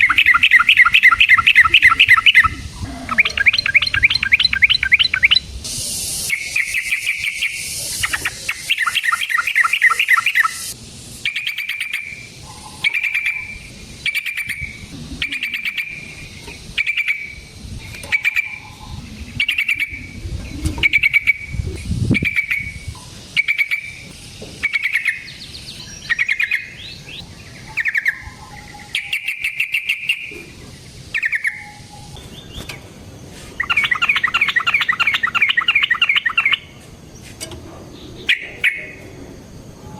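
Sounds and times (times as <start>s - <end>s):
bird bubbling phrases: 0.0s - 5.4s, 6.3s - 10.7s, 11.3s - 17.4s, 18.0s - 25.3s
bird chattering: 0.0s - 32.2s, 33.6s - 36.7s, 38.1s - 39.0s.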